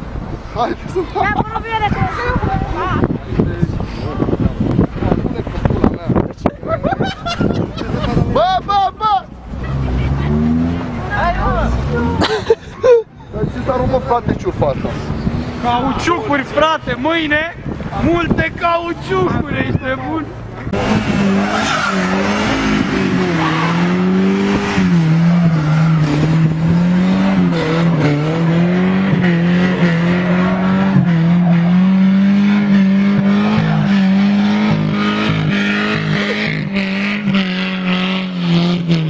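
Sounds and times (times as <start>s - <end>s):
car engine revving high: 9.4s - 12.4s, 20.2s - 39.0s.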